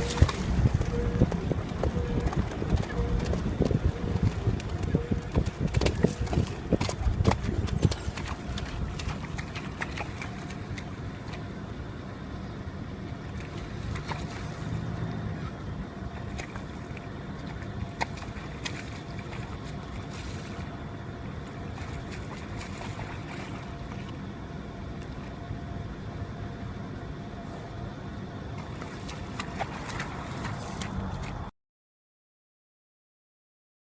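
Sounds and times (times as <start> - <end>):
wind on microphone: 0.0 - 10.6
water splashing and dripping: 0.0 - 11.5, 13.2 - 15.5, 16.1 - 20.8, 21.4 - 24.2, 28.6 - 31.5.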